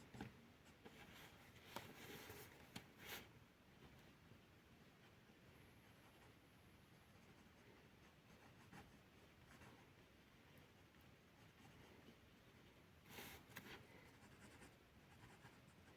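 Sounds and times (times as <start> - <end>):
pencil scratching on paper: 13.1 - 15.9.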